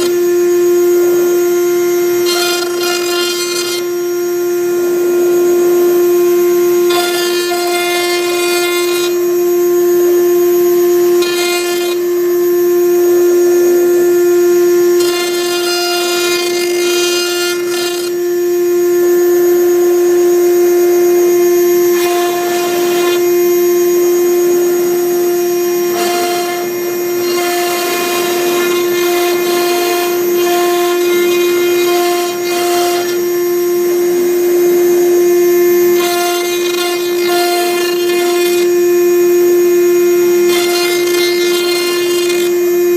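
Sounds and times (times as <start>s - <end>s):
router spindle whining: 0.0s - 42.9s
rushing cutting noise: 24.5s - 33.2s.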